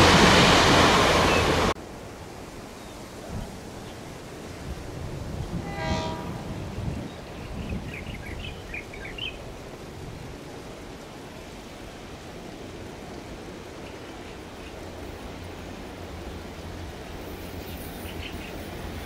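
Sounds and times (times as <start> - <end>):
train rumble: 0.0 - 19.0
train horn blast: 5.4 - 7.1.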